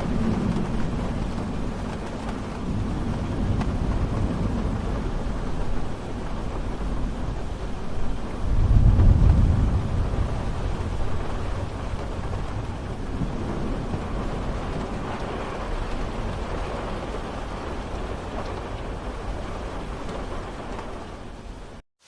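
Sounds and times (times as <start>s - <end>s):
low thunder rumble: 0.0s - 21.7s
steady rain falling: 0.0s - 21.8s.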